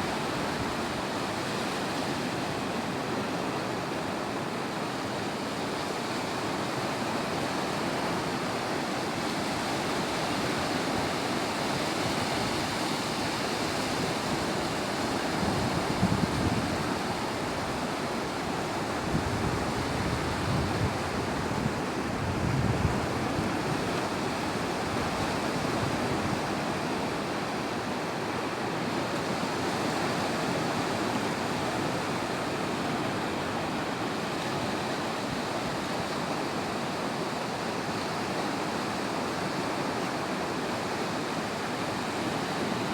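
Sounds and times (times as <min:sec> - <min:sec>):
waves breaking on beach: 0:00.0 - 0:42.9
wind buffeting microphone: 0:11.8 - 0:26.6.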